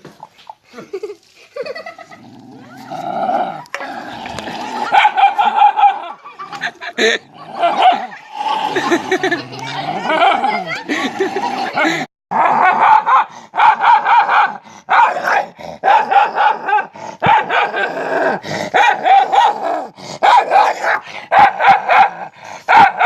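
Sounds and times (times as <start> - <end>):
dog barking and yipping: 4.8 - 6.2, 7.6 - 8.3, 12.6 - 17.8, 18.8 - 19.6, 20.2 - 23.0.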